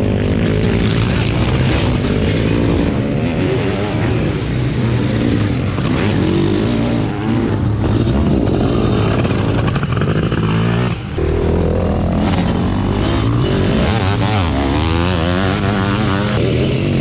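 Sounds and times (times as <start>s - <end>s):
motocross engines revving hard: 0.0s - 17.0s.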